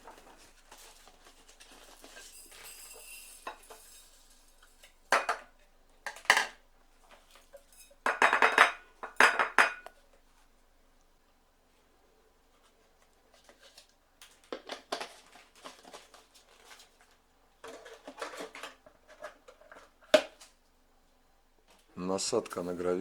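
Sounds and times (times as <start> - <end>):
vacuum parts clinking and clattering: 0.0 - 9.8.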